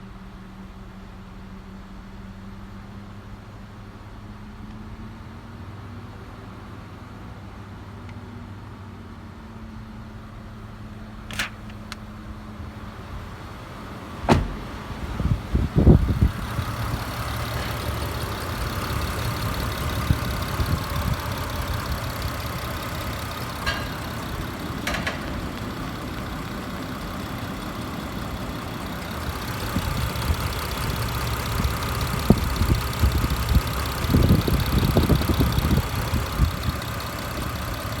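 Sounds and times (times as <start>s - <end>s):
sharp click: 11.3s - 12.0s
car engine running: 11.3s - 38.0s
low thumps: 12.8s - 27.9s.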